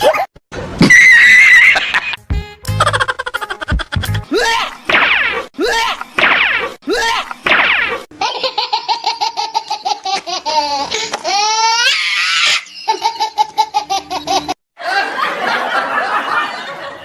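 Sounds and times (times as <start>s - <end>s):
high-pitched laughter: 1.0s - 2.2s, 2.8s - 4.8s, 8.2s - 15.4s.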